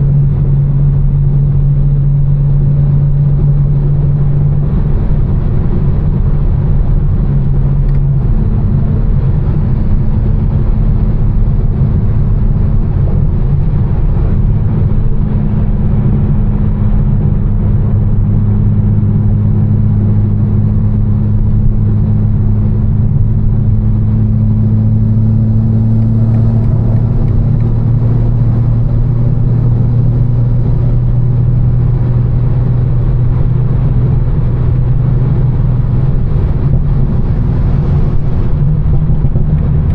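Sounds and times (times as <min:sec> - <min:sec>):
car engine droning while cruising: 0:00.0 - 0:39.9.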